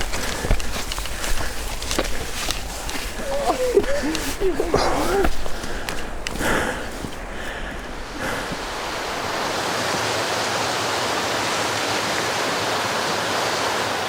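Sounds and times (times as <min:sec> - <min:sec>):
rushing outdoor noise: 0:00.0 - 0:14.0.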